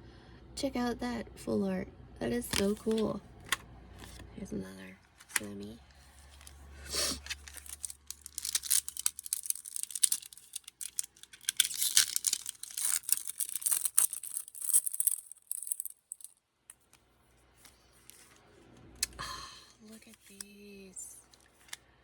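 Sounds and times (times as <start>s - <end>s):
foil wrapper crinkling and tearing: 5.1s - 16.9s.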